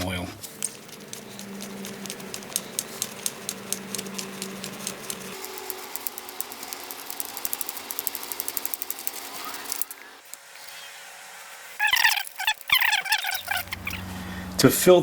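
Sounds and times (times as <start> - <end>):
hand ratchet clicking: 0.6 - 10.4
short chirping sounds: 11.7 - 14.0.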